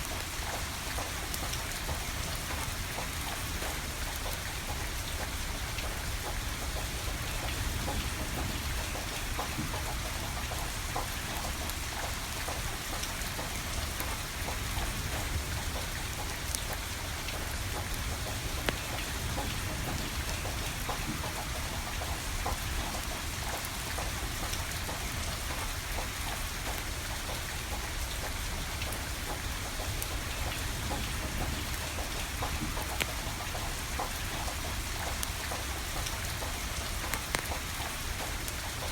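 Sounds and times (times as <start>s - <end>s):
steady rain falling: 0.0s - 38.9s
wood fire crackling and popping: 35.1s - 38.9s.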